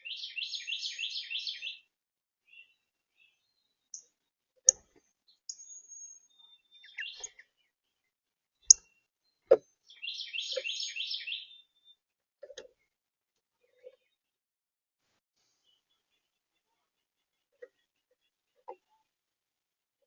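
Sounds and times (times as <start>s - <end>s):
small birds chirping: 0.0s - 7.8s, 8.7s - 12.0s.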